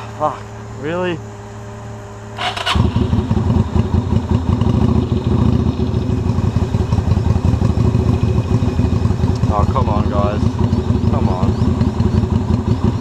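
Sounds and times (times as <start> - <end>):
motorcycle engine running: 0.0 - 13.0
starter motor whirr: 2.4 - 3.2.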